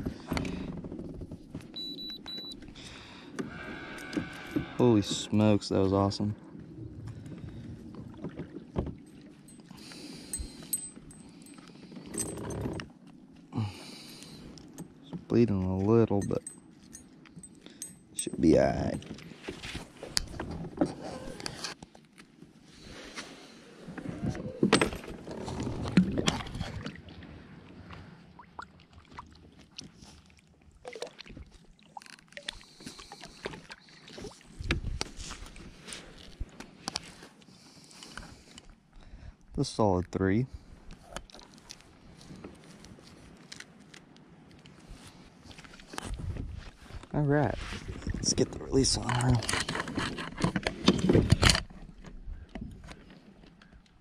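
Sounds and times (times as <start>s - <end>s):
clicks and rattles of tackle: 48.8s - 54.0s.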